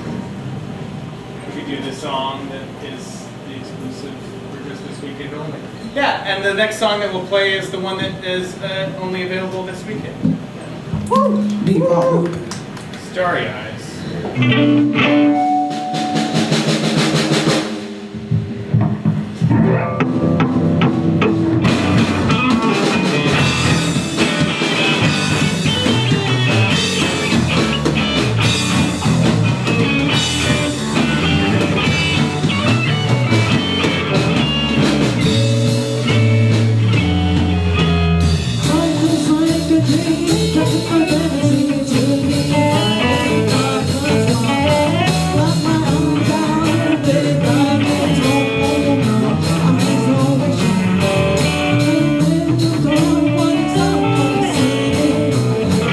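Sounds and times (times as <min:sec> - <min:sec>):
drums: 0:00.0 - 0:04.6, 0:05.5 - 0:55.9
electric guitar: 0:14.2 - 0:55.9
live rock band: 0:14.3 - 0:55.9.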